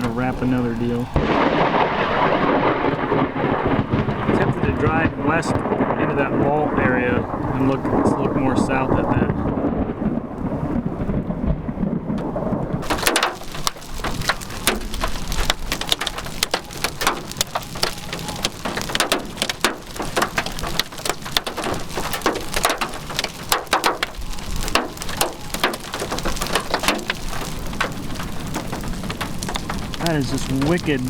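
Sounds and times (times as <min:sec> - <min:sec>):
heavy rain on a vehicle: 0:00.0 - 0:11.2, 0:11.8 - 0:31.0
low rumble: 0:01.0 - 0:13.1.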